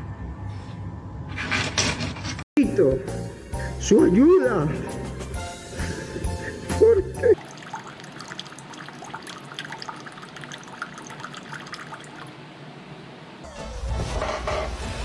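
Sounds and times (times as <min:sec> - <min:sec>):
water trickling and dripping: 0:07.4 - 0:12.5.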